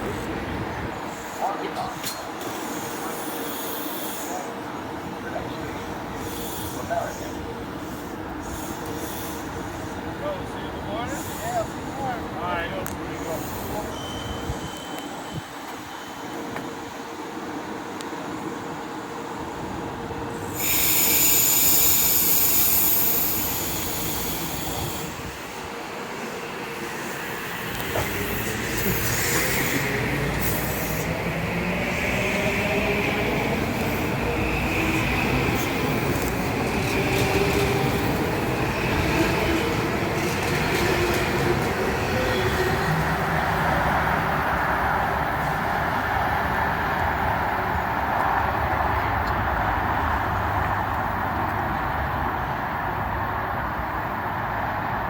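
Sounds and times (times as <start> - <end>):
train hum: 0.0 - 55.0
loud squealing hiss: 13.2 - 16.2, 20.4 - 25.5.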